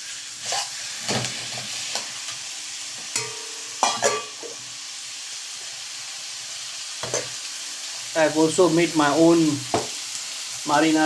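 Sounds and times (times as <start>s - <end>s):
utensil scraping a wok: 0.0s - 2.4s
meat sizzling in a wok: 0.0s - 11.0s.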